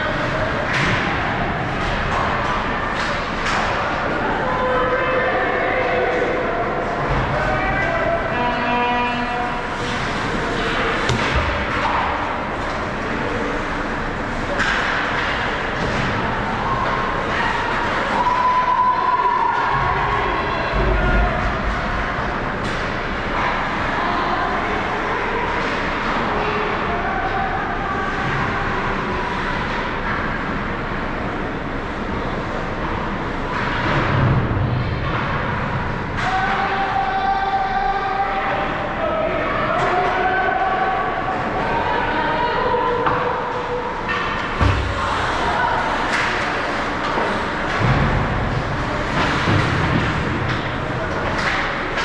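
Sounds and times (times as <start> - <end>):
ice rink noise: 0.0 - 52.0
sharp knocks of hockey play: 0.6 - 4.3, 9.7 - 19.8, 42.9 - 52.0.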